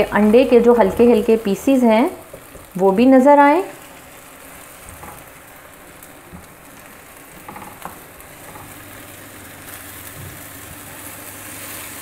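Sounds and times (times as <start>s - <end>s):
eggs sizzling in pan: 0.0s - 12.0s
spatula scraping and tapping: 4.8s - 5.3s, 7.4s - 8.8s.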